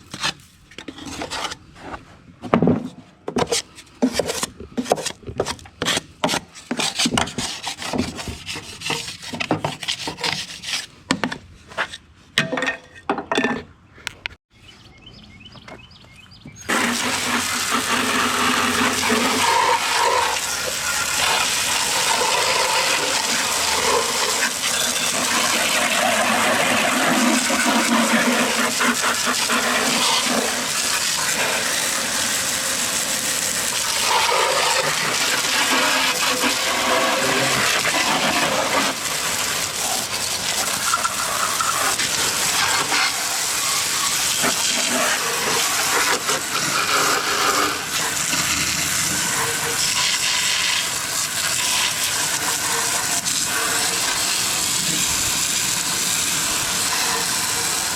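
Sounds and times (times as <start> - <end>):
water spraying against metal: 16.7 - 57.9.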